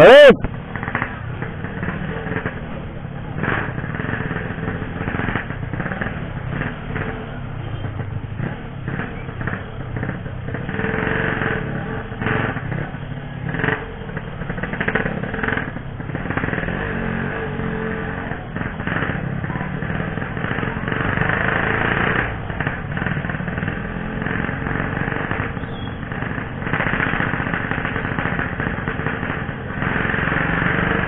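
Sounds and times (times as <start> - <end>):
two-stroke motorcycle engine: 0.0 - 31.0.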